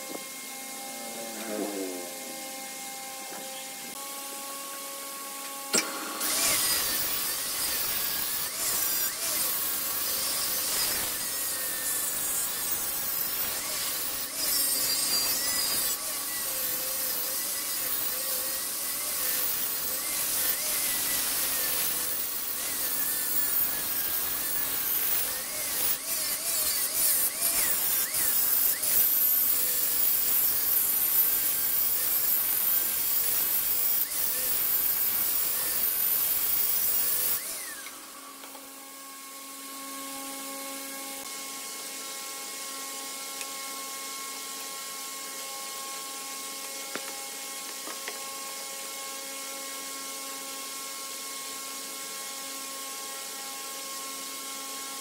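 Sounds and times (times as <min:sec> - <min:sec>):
lathe tool scraping wood: 0:00.0 - 0:42.0.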